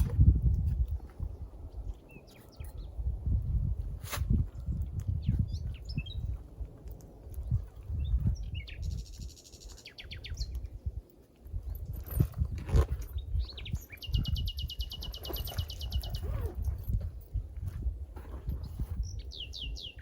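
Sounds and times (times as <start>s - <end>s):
songbird chirps and whistles: 8.0s - 10.7s, 13.2s - 16.4s
bird trill: 13.1s - 16.9s.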